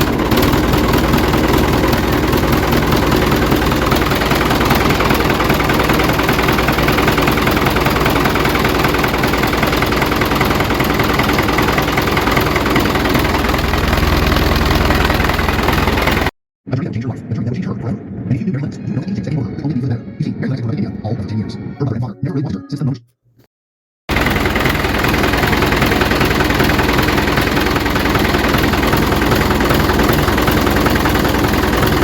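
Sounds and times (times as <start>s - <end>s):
engine idling with fast pulsing: 0.0s - 16.3s, 24.1s - 32.0s.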